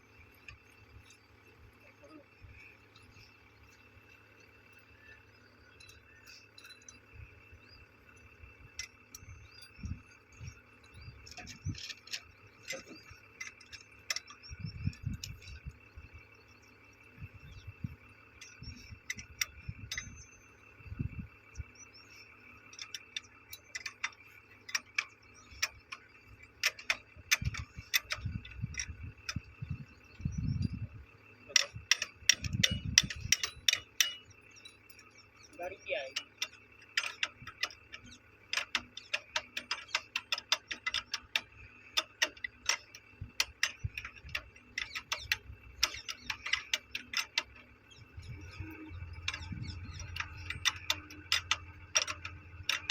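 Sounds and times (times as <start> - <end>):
faint steady hum: 0.0 - 52.9
sharp clicks and light taps: 22.6 - 30.8, 31.4 - 52.9.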